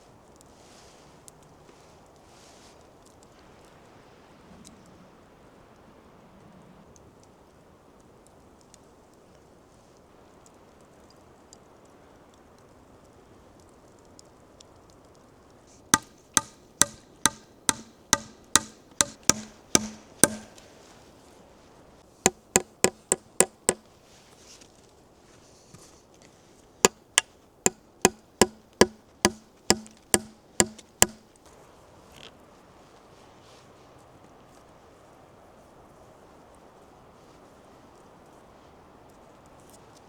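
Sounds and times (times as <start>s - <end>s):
hand tool striking wood: 16.0s - 20.7s, 22.3s - 23.9s, 26.9s - 31.2s.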